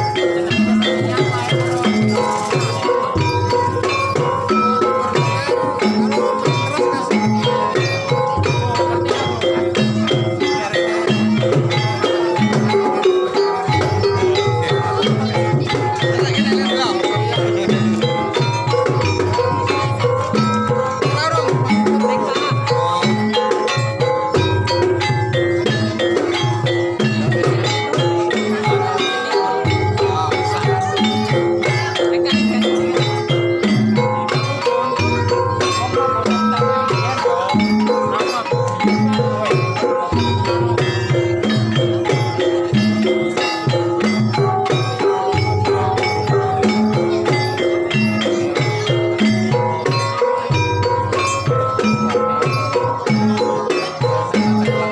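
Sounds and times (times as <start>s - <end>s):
drums: 0.0s - 54.9s
struck pitched percussion ensemble: 0.0s - 54.9s.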